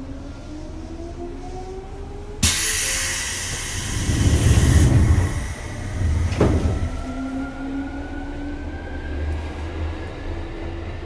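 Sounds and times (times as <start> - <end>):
loud rushing hiss: 2.4 - 6.3
heavy rumble: 3.3 - 7.1.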